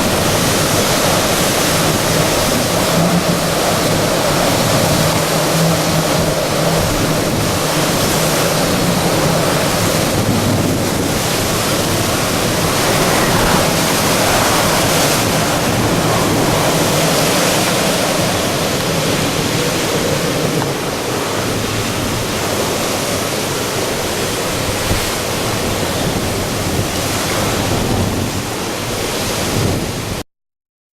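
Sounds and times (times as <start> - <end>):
strong wind rushing: 0.0 - 22.6.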